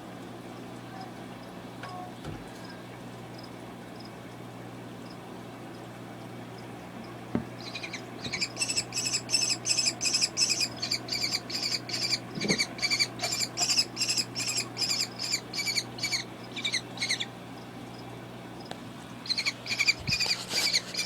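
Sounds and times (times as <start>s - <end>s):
baby kestrel shrill calls: 7.6s - 17.3s, 19.2s - 21.0s.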